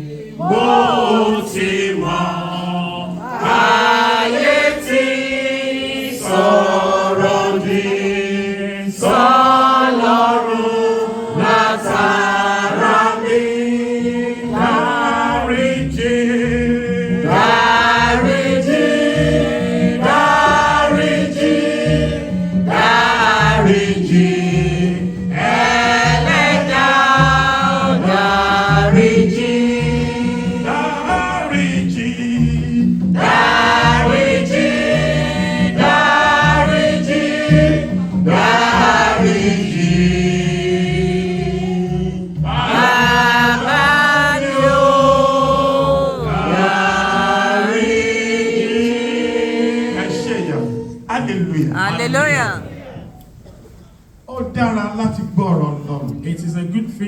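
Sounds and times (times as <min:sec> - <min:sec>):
church choir singing: 0:00.0 - 0:53.0.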